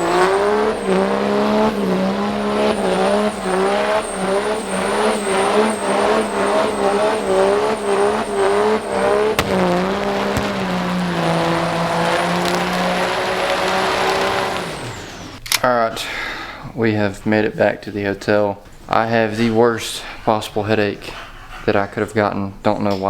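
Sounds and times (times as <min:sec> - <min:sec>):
diesel truck engine revving: 0:00.0 - 0:15.4
faint high whistle: 0:02.5 - 0:10.8.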